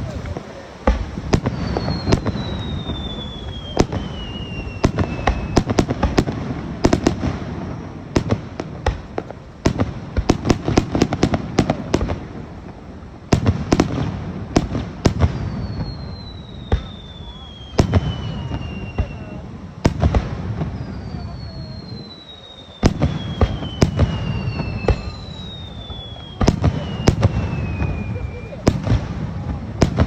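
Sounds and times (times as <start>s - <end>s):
fireworks bursting with sharp bangs: 0.0s - 30.0s
faint falling whistle: 1.6s - 5.7s, 15.4s - 19.4s, 20.8s - 28.8s.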